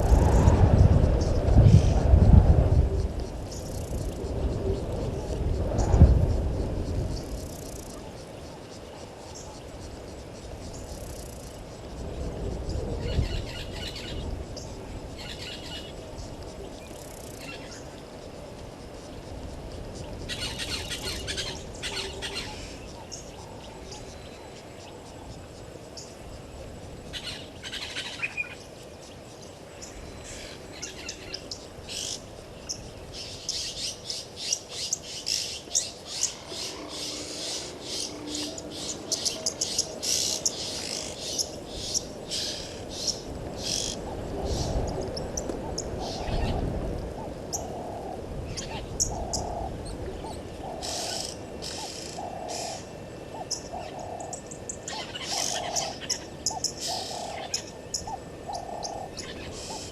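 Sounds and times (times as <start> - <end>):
birds chirping and calling: 20.0 - 25.4, 29.8 - 59.9
bird hooting: 35.7 - 41.5, 50.6 - 59.9.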